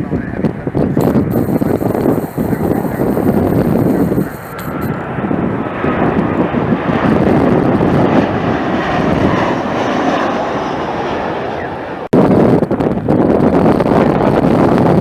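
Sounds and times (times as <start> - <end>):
jet airliner passing: 0.6 - 12.1.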